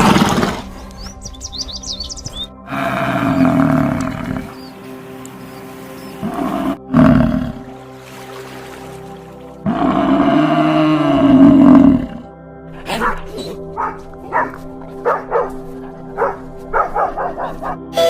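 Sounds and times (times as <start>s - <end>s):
background music: 0.0s - 18.0s
dog barking: 12.9s - 18.0s
drawn-out animal call: 13.5s - 18.0s.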